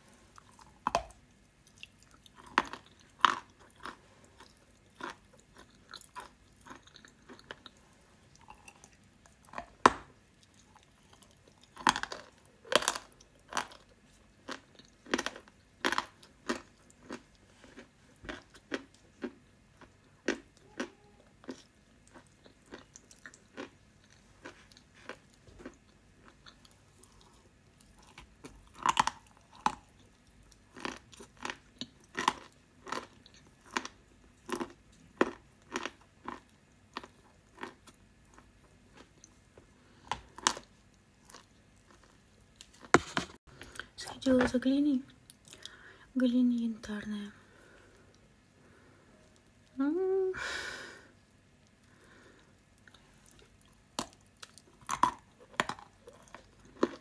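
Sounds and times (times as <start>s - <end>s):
chewing with crisp crunches: 0.0s - 44.0s, 45.1s - 46.0s, 51.3s - 57.0s.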